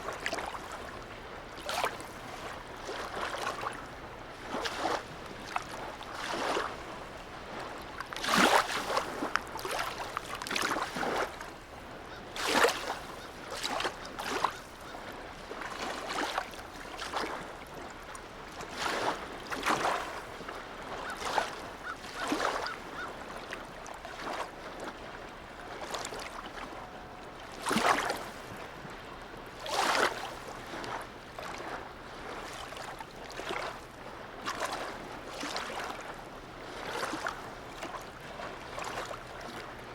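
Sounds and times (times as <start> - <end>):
small waves lapping: 0.0 - 39.9
wave slaps: 8.0 - 11.4.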